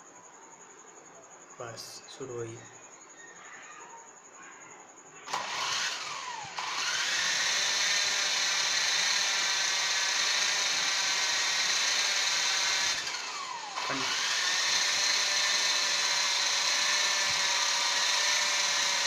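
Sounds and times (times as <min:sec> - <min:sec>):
toy helicopter motor whine: 0:05.3 - 0:19.0.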